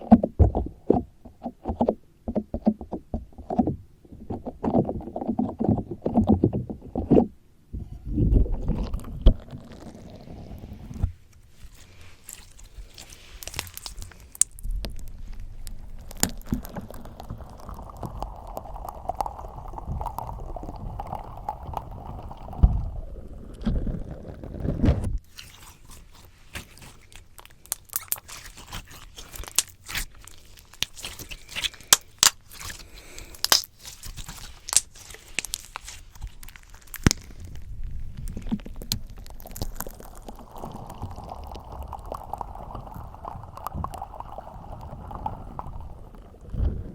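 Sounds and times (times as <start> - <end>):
slime squelching on microphone: 0.0 - 46.9
sticky slime pops and crackles: 12.3 - 22.6, 24.8 - 42.4.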